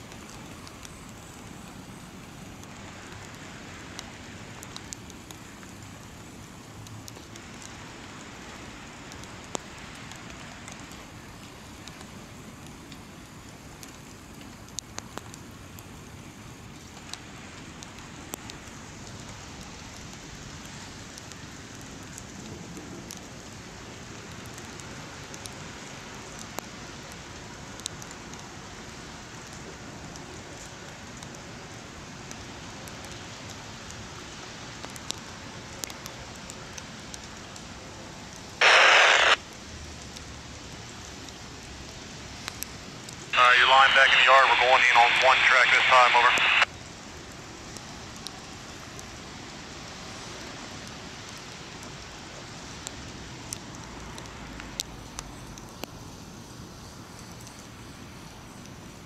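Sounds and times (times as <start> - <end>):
light rain hiss: 0.0 - 59.0
scanner radio static burst: 38.6 - 39.4, 43.4 - 46.7.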